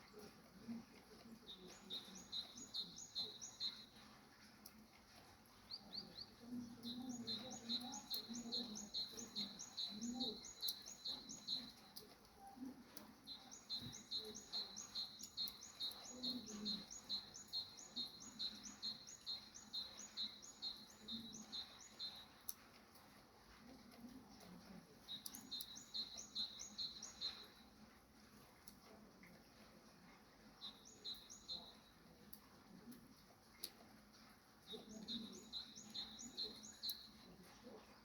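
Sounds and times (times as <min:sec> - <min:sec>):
small bird chirping: 0:01.5 - 0:04.0, 0:05.7 - 0:22.4, 0:25.0 - 0:27.6, 0:30.6 - 0:32.0, 0:34.7 - 0:37.8.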